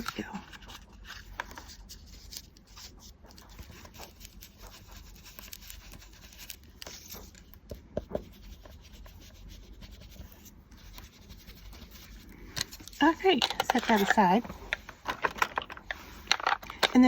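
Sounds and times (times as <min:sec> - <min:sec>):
brush rubbing ink onto paper: 0:08.0 - 0:13.3.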